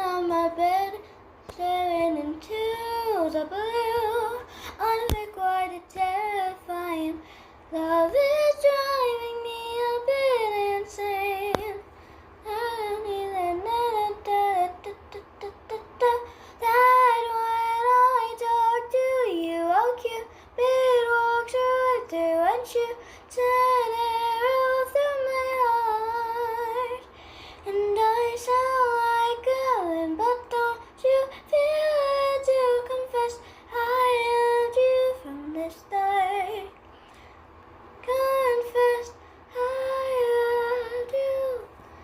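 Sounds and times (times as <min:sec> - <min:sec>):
girl singing: 0:00.0 - 0:36.8, 0:38.0 - 0:42.0.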